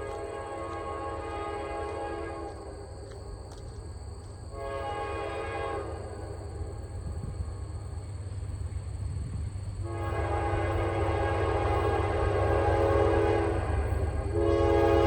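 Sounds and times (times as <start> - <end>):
locomotive air horn: 0.0 - 2.7, 4.5 - 6.2, 9.8 - 15.0.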